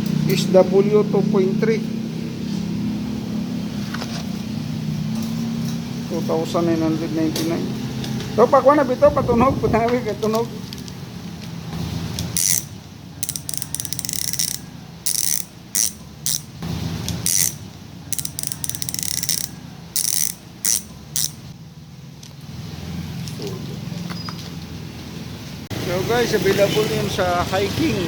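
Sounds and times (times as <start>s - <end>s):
bicycle freehub ratcheting: 12.2s - 16.6s, 17.2s - 21.5s.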